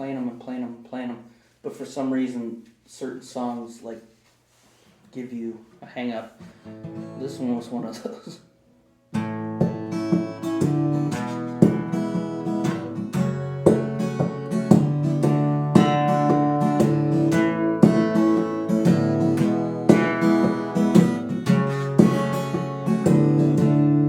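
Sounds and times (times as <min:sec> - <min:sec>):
acoustic guitar strumming: 0:06.4 - 0:08.1, 0:09.1 - 0:24.0.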